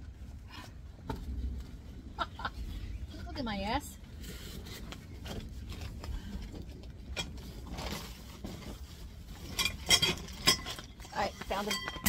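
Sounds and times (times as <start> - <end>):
rustling and scraping of gear: 4.0 - 12.0
metal tent poles clinking: 7.1 - 12.0.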